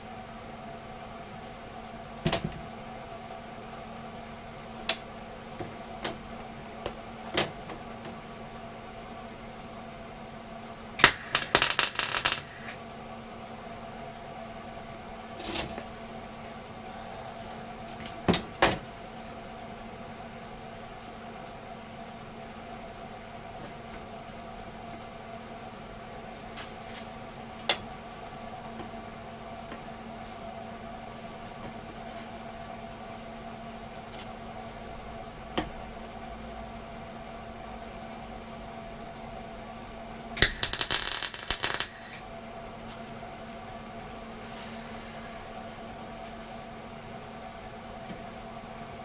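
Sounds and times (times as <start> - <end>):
steady electrical hum: 0.0 - 49.0
welding crackle: 11.0 - 12.8, 40.4 - 42.2.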